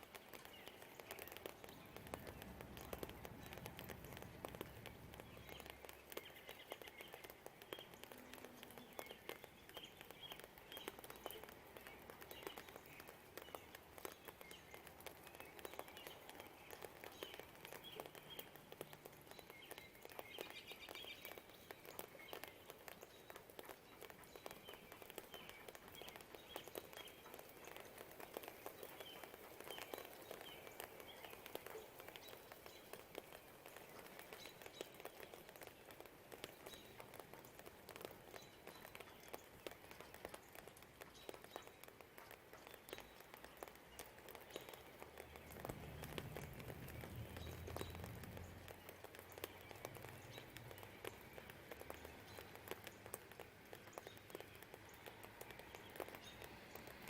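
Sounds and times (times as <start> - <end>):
birds chirping: 0.0 - 57.0
light rain pattering and dripping: 0.0 - 57.0.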